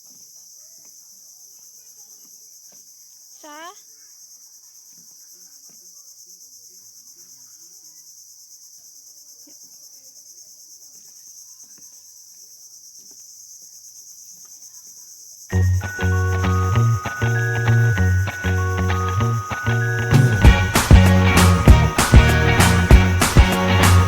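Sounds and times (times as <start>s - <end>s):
insects chirring: 0.0s - 24.0s
music: 15.6s - 24.0s.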